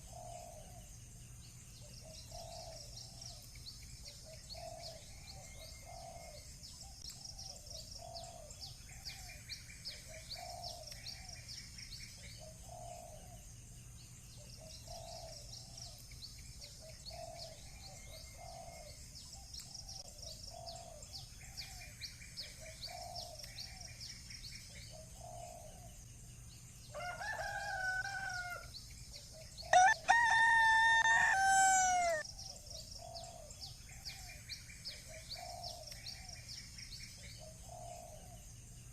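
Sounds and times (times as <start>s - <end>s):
small birds chirping: 0.0s - 38.9s
rooster crowing: 26.9s - 28.7s, 29.7s - 32.2s
low repeating bird call: 29.7s - 32.3s.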